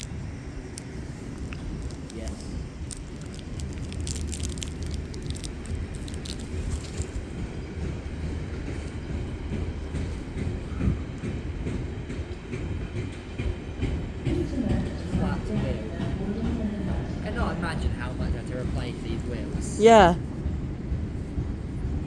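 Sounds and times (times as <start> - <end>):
train wheels running over rails: 0.0 - 19.6.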